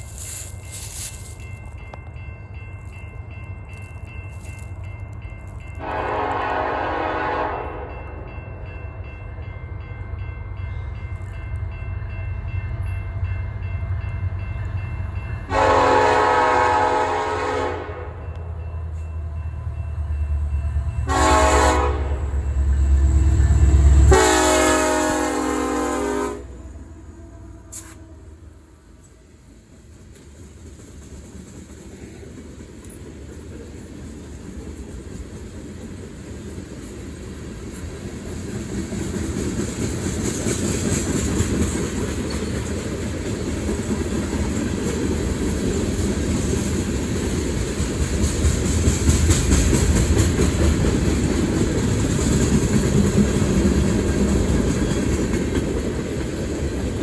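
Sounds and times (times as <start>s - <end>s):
train rumble: 0.0s - 57.0s
locomotive air horn blasts: 5.8s - 7.9s, 15.5s - 18.2s, 21.0s - 22.4s, 23.4s - 28.4s.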